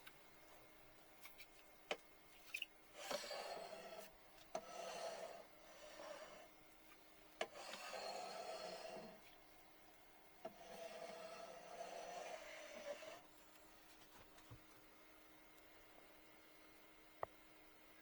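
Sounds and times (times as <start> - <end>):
scraping strokes: 2.4 - 6.5, 7.5 - 9.3, 10.6 - 13.3.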